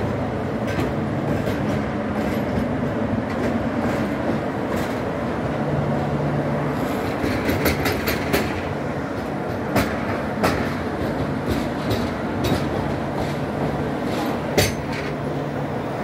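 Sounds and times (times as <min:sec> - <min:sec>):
train coaches rumbling past: 0:00.0 - 0:16.0
wheels clicking over rail joints: 0:06.8 - 0:15.3.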